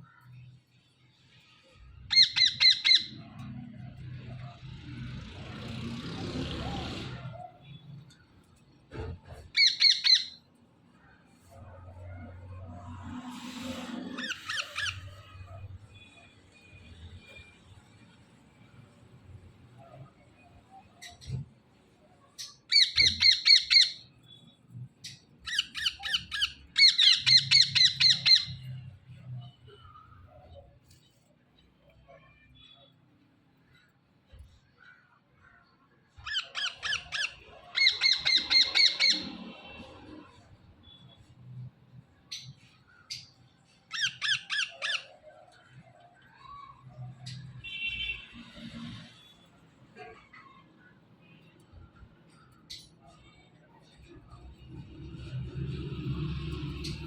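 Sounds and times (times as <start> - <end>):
parrots squawking: 2.1 - 3.7, 9.4 - 10.4, 14.0 - 15.6, 22.7 - 24.1, 25.5 - 28.8, 36.2 - 39.7, 43.9 - 45.6.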